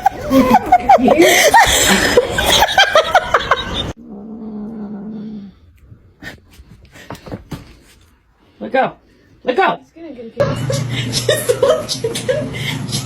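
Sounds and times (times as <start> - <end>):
people laughing: 0.0 - 4.0, 10.4 - 13.0.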